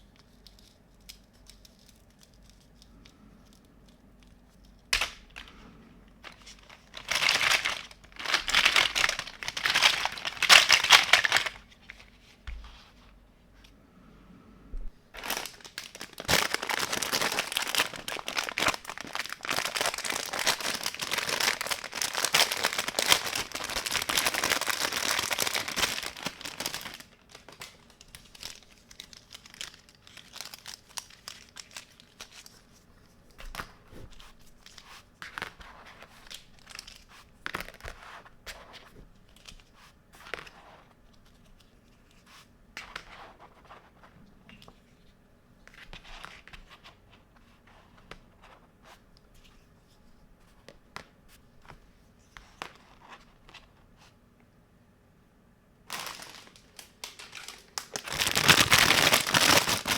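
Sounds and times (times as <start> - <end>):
packaging crinkling and tearing: 4.9 - 5.6, 6.2 - 12.1, 15.1 - 32.8, 36.2 - 37.8, 55.9 - 59.9.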